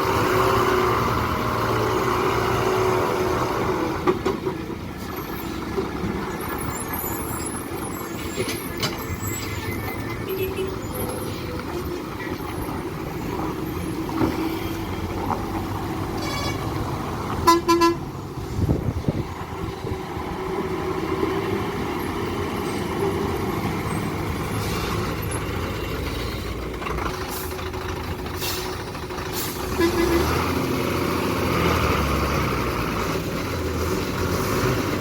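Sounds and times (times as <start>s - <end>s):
diesel trucks running: 0.0s - 35.0s
truck horn blasts: 16.2s - 16.7s, 17.4s - 18.1s, 29.7s - 30.5s.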